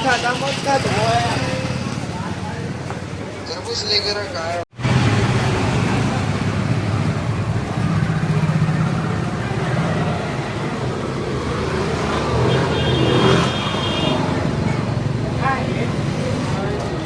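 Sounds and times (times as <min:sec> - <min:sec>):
motorcycle engine running: 0:04.8 - 0:17.0.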